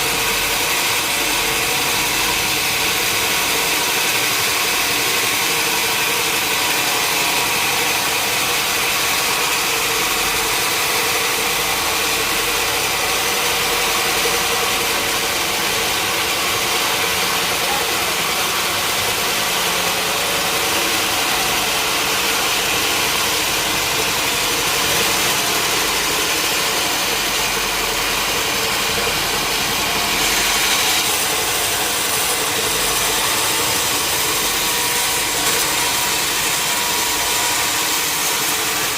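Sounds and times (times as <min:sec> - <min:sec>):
sawmill machine hum: 0:00.0 - 0:38.9.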